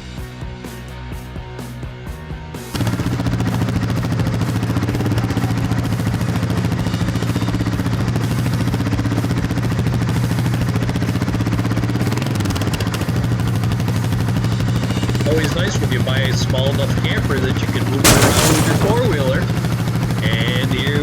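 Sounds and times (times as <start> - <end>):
quad bike engine running: 2.7 - 19.4.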